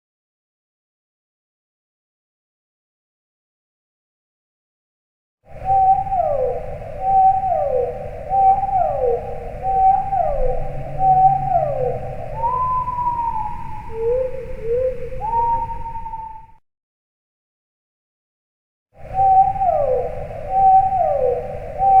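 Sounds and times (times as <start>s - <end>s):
whale-like calls: 5.8s - 16.6s.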